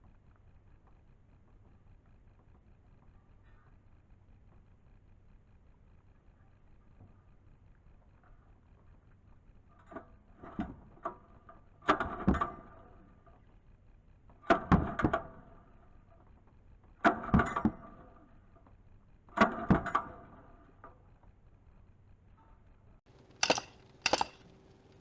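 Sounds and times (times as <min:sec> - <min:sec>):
engine cranking: 0:23.1 - 0:25.0
recoil starter pulls clattering: 0:23.1 - 0:25.0.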